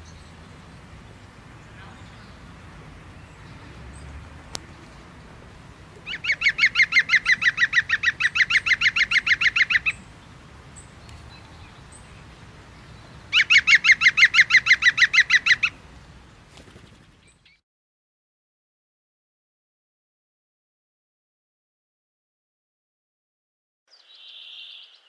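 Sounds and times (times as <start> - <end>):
bird trilling: 6.0 - 10.1, 13.3 - 15.8.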